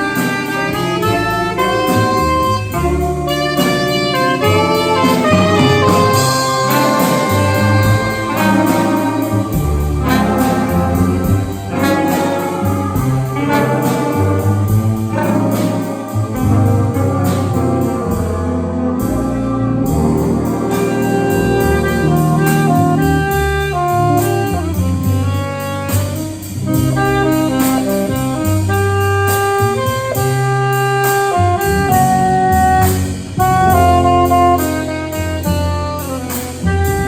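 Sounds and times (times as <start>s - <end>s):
jazz band horns playing: 0.0s - 37.0s.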